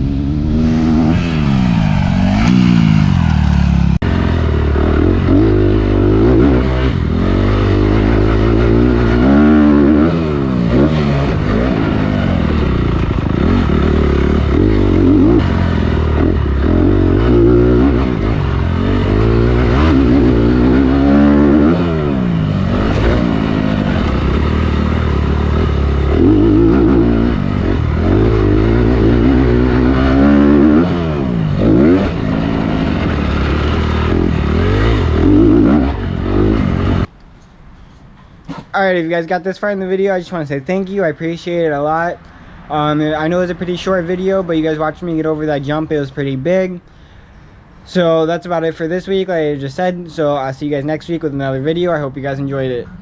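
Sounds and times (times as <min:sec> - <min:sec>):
dirt bike engine revving: 0:00.0 - 0:37.1.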